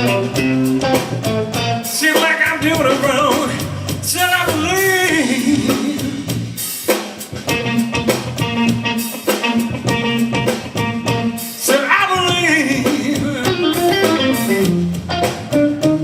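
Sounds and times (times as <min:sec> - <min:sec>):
guitar melody bending down: 0:00.0 - 0:03.6, 0:07.4 - 0:11.6, 0:12.2 - 0:16.0
blues band playing: 0:00.0 - 0:16.0.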